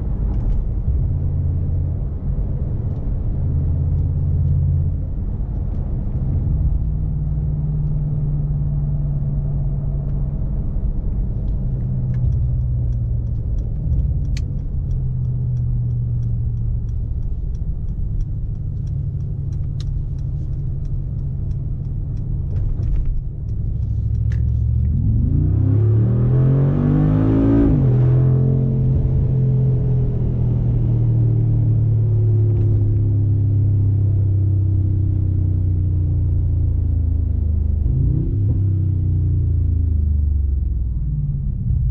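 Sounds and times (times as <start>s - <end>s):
car engine droning: 0.0s - 41.9s
faint regular ticking: 12.2s - 24.5s.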